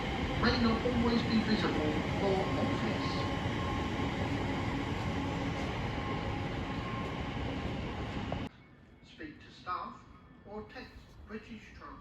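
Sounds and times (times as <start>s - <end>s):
passenger train rumbling: 0.0s - 8.5s.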